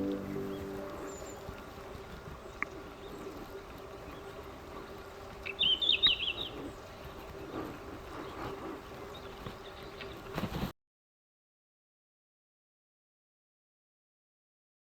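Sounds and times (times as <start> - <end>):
songbird calling: 0.0 - 1.6, 5.4 - 7.1.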